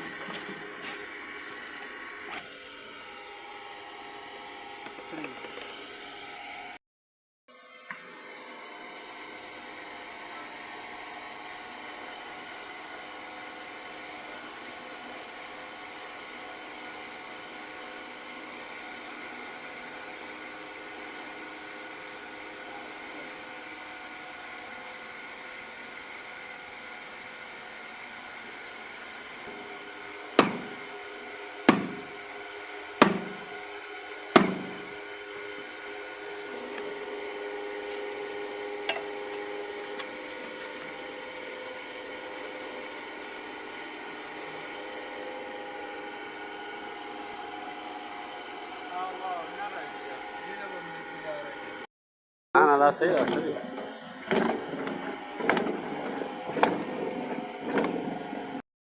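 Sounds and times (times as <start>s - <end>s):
mechanical motor hum: 7.6s - 51.8s, 53.0s - 58.6s
sharp knocks: 30.4s - 30.8s, 31.7s - 32.1s, 33.0s - 33.5s, 34.4s - 34.9s.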